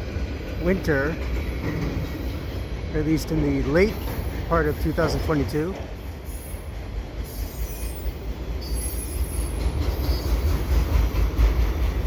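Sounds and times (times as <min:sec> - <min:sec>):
freight train wheels rumbling on rail: 0:00.0 - 0:12.0
faint high wheel squeal: 0:01.8 - 0:10.8.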